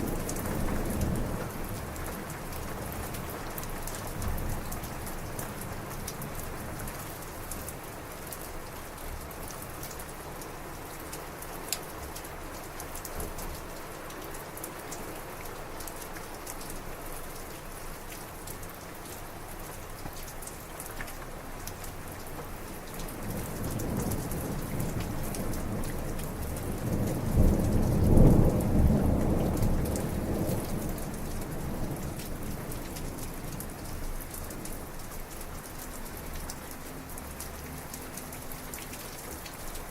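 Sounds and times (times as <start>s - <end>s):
close raindrop hits: 0.0s - 39.9s
heavy rain: 0.0s - 39.9s
low thunder rumble: 23.2s - 34.1s.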